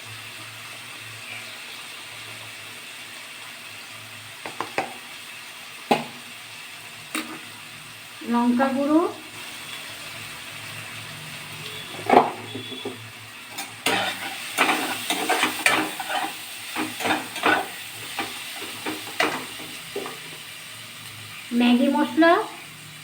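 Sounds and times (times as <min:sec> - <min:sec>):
low sizzle of frying: 0:00.0 - 0:23.0
utensil scraping a frying pan: 0:11.7 - 0:20.4.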